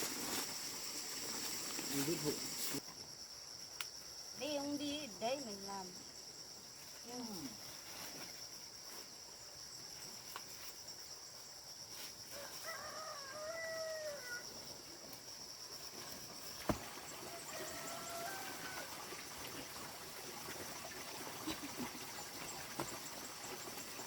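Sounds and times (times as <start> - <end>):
high-pitched insect drone: 0.0 - 16.6
rooster crowing: 12.3 - 14.5, 17.3 - 19.1.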